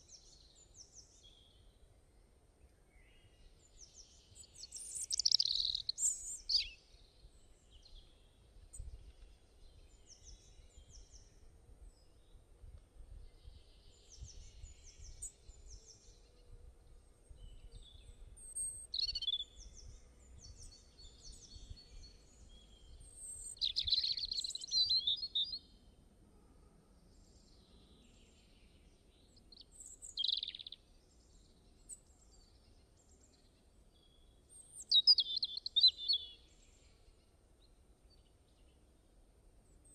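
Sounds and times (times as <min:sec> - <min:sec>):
birds chirping and trilling: 0:03.8 - 0:06.8, 0:18.9 - 0:19.6, 0:29.5 - 0:30.8, 0:34.6 - 0:36.4.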